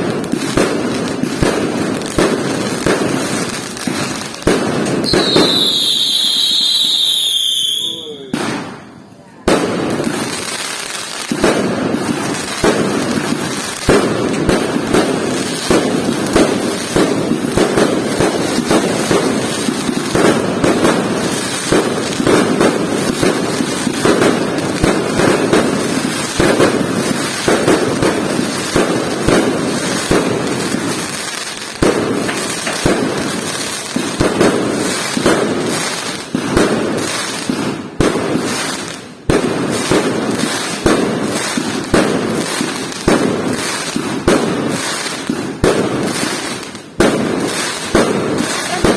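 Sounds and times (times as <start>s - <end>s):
fireworks bangs and crackles: 0.0s - 48.9s.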